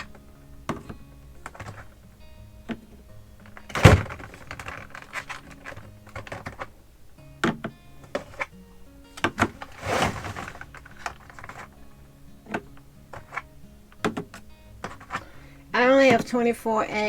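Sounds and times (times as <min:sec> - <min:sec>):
eggs and plastic trays clicking: 0:00.0 - 0:08.5, 0:09.1 - 0:16.6
soft background music: 0:00.0 - 0:17.0
short scrape: 0:09.5 - 0:11.1.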